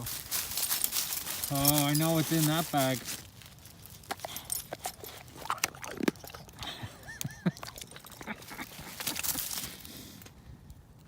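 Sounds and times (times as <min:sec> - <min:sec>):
snack bag rustling: 0:07.7 - 0:10.1.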